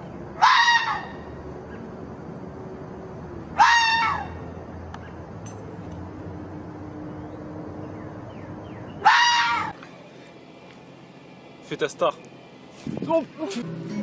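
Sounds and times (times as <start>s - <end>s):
animal shrill cry: 0.4s - 1.2s, 3.6s - 4.4s, 9.0s - 9.8s.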